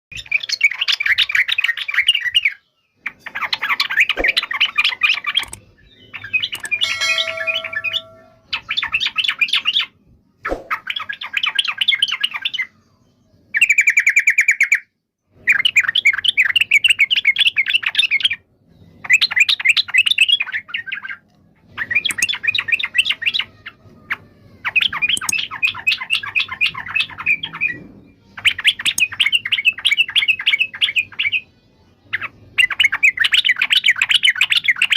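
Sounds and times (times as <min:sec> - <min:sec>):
bird singing chattering notes: 0:03.1 - 0:09.4, 0:21.8 - 0:23.2, 0:24.8 - 0:27.5, 0:28.5 - 0:31.2.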